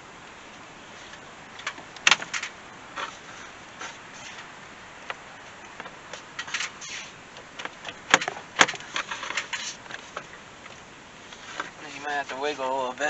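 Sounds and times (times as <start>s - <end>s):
plastic parts clicking and rattling: 5.8s - 10.4s.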